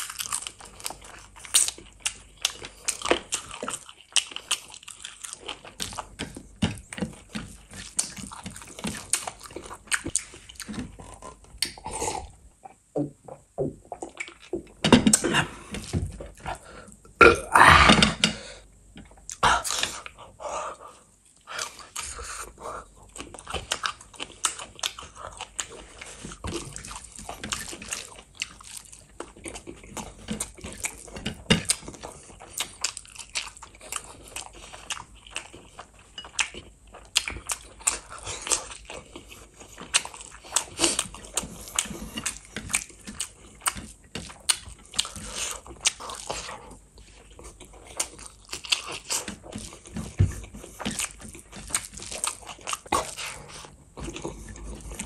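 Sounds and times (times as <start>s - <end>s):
mouth clicks and crunches: 21.3s - 55.0s.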